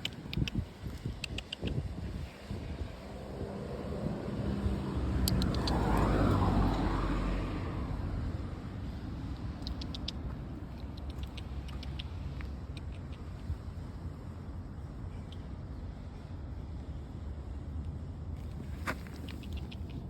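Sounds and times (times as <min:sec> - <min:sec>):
sharp high ticks or chirps: 0:00.0 - 0:01.8, 0:05.2 - 0:06.1, 0:09.4 - 0:13.5, 0:19.2 - 0:20.0
vehicle passing by: 0:01.8 - 0:13.9.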